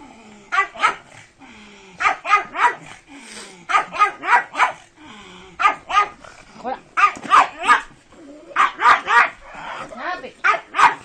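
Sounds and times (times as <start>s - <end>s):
dog barking sharply: 7.0s - 7.9s, 8.6s - 9.4s, 10.4s - 11.0s.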